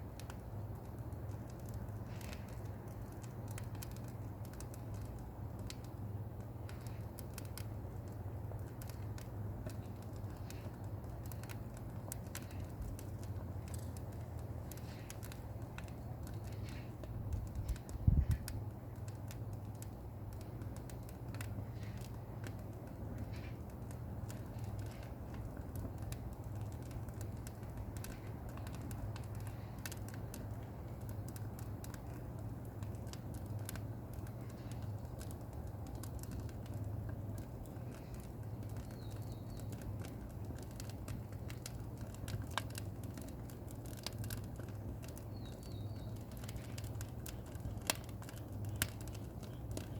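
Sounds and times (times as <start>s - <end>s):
firewood crackling and popping: 0.0s - 49.9s.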